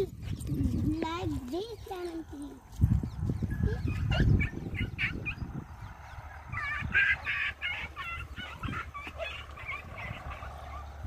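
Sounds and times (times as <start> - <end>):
bird calling: 3.4 - 11.0.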